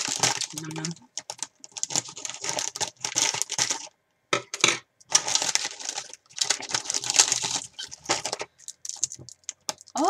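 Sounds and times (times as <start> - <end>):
rice crackers crunching: 0.0 - 3.9, 5.1 - 10.0.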